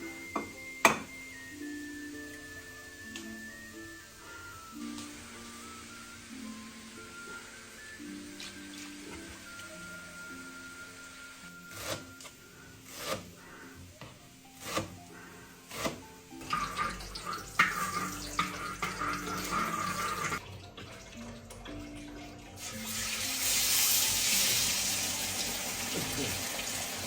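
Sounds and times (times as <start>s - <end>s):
background music: 0.0s - 27.0s
tap water running into sink: 16.4s - 27.0s.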